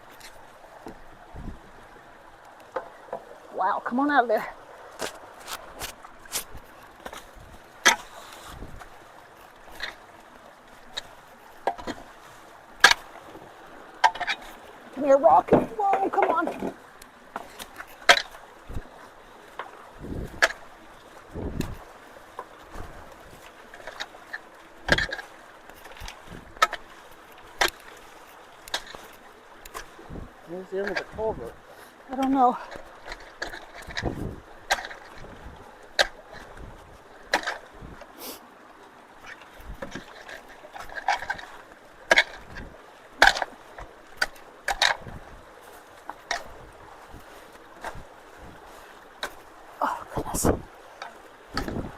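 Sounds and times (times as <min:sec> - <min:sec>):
shallow running water: 0:00.0 - 0:51.9
water splashes: 0:00.0 - 0:51.9
tool knocking and scraping rocks: 0:05.0 - 0:08.8, 0:10.9 - 0:12.1, 0:12.8 - 0:13.1, 0:14.0 - 0:18.4, 0:23.8 - 0:26.9, 0:28.7 - 0:29.9, 0:30.6 - 0:31.5, 0:32.1 - 0:36.5, 0:37.3 - 0:37.6, 0:39.7 - 0:45.2, 0:50.1 - 0:51.9.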